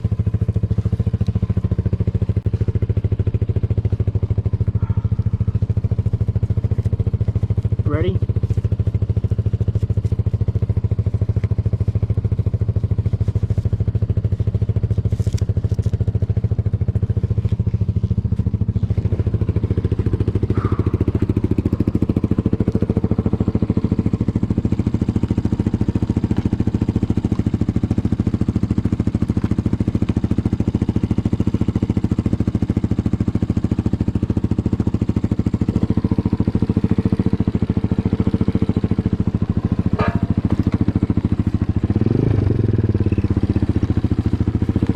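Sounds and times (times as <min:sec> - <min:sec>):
dirt bike engine running: 0:00.0 - 0:44.9.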